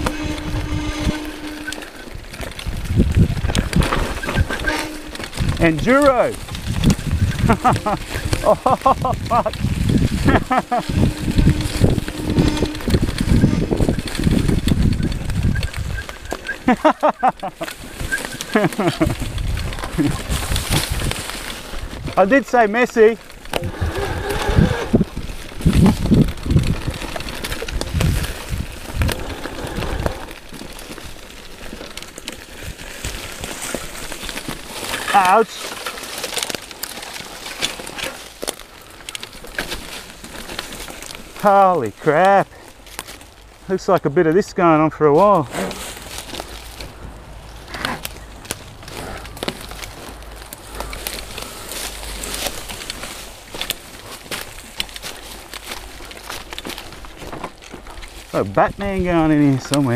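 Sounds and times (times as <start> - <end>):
wind rumbling on microphone: 0.0 - 16.8, 17.4 - 22.5, 23.2 - 43.7
bike knocks and rattles: 0.0 - 41.4, 45.2 - 59.9.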